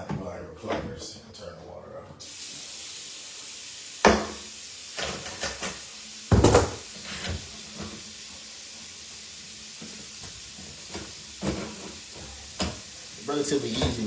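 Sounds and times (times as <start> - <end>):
knocks and clatters in cabinet: 6.3 - 6.8.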